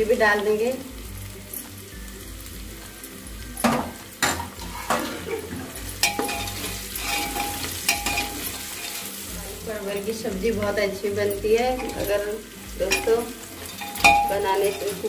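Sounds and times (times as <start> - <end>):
onions sizzling in hot oil: 0.0 - 15.0
ladle knocking and scraping pot: 3.6 - 9.0.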